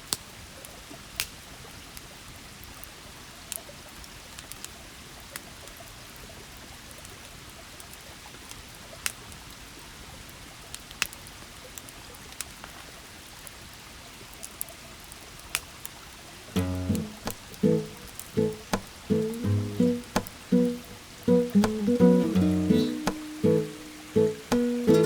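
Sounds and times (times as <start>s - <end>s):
plucked music: 16.6s - 25.0s
river murmuring: 16.6s - 25.0s.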